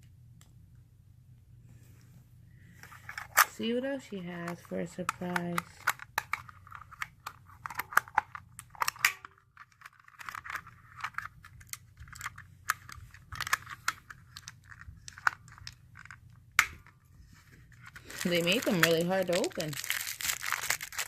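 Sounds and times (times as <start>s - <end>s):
plastic packet crinkling and tearing: 5.1s - 16.4s, 17.7s - 21.0s.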